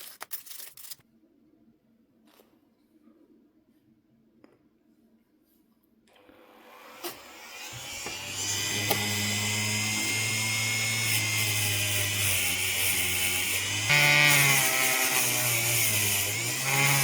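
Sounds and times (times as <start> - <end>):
small electric motor whining: 6.8 - 17.0.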